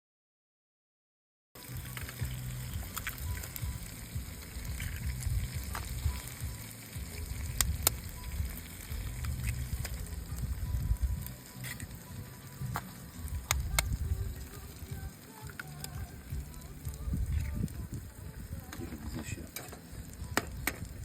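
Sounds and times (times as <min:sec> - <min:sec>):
meat sizzling: 0:01.6 - 0:21.0
wood fire pops and crackles: 0:01.6 - 0:21.0
low rumble: 0:01.7 - 0:15.2.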